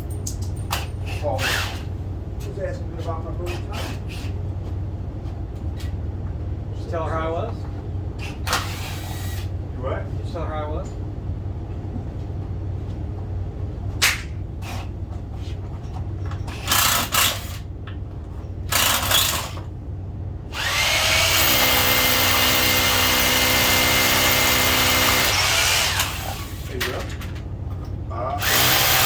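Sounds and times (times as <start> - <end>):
power drill running: 16.7 - 17.6, 18.7 - 19.6, 20.5 - 26.7, 28.4 - 29.0.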